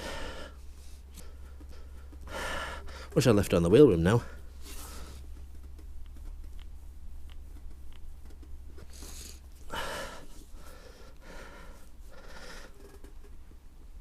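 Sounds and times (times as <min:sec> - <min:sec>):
man breathing hard: 0:00.0 - 0:03.2, 0:04.2 - 0:05.3, 0:08.9 - 0:13.0
steady low hum: 0:00.0 - 0:14.0
faint clicks: 0:05.2 - 0:09.4.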